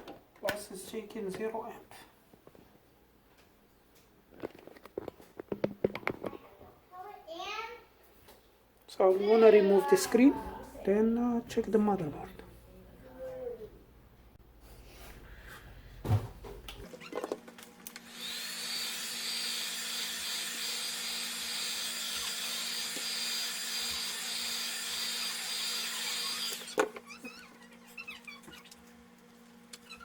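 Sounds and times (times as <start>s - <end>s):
electric motor tool whining: 17.8s - 27.6s.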